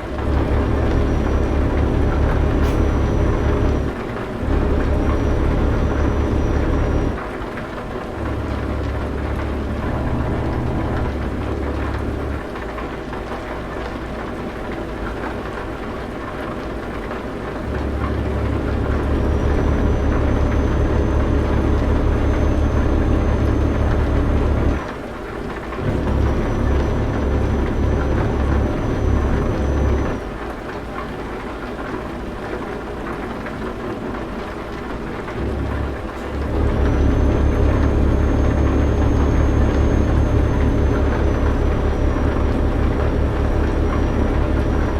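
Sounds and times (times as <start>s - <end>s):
truck engine rumbling: 0.0s - 31.4s, 33.7s - 44.9s.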